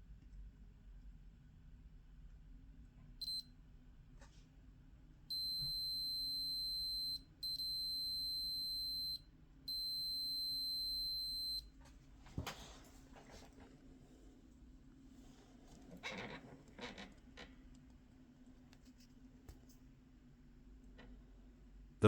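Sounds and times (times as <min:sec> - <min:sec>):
multimeter beeps: 0:03.2 - 0:03.5, 0:05.3 - 0:11.7.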